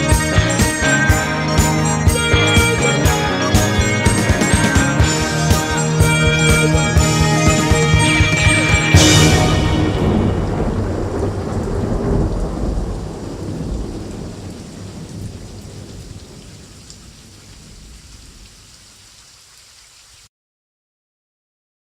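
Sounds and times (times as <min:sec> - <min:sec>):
dense low rumbling: 0:05.0 - 0:13.2.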